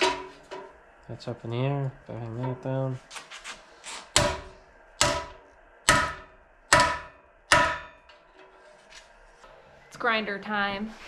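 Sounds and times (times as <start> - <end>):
hammer ringing on steel: 4.2 - 8.1.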